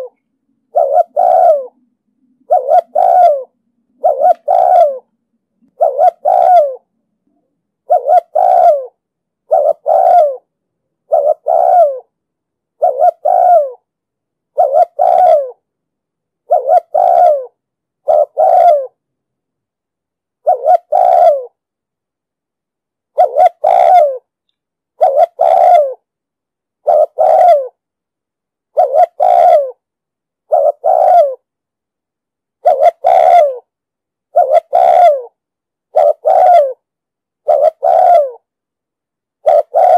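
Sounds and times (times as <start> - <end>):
dove cooing: 0.0 - 5.1, 5.7 - 6.9, 7.8 - 12.1, 12.8 - 13.9, 14.5 - 15.6, 16.4 - 19.0, 20.4 - 21.6, 23.1 - 24.3, 25.0 - 26.1, 26.8 - 27.8, 28.7 - 29.8, 30.4 - 31.5, 32.6 - 33.7, 34.3 - 38.5, 39.4 - 39.9.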